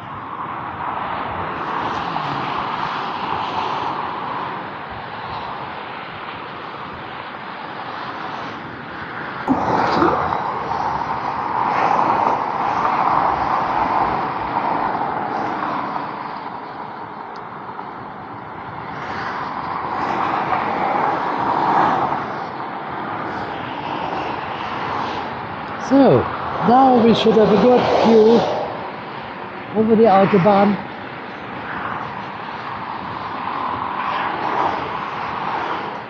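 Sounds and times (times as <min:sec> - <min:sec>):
highway traffic passing: 0:00.0 - 0:36.0.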